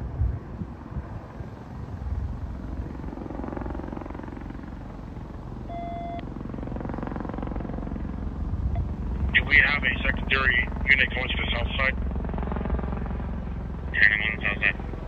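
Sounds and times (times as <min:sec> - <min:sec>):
helicopter rotor chop: 0:00.0 - 0:15.0
short electronic beep: 0:05.7 - 0:06.2.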